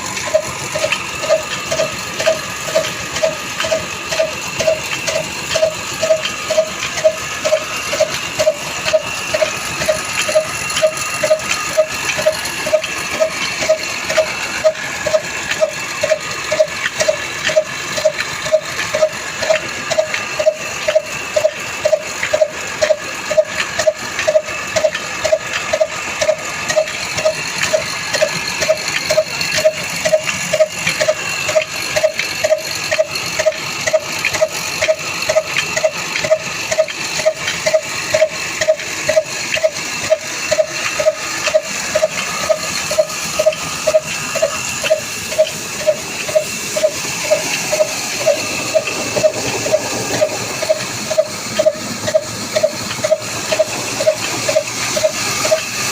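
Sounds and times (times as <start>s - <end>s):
diesel engine beating: 0.0s - 55.9s.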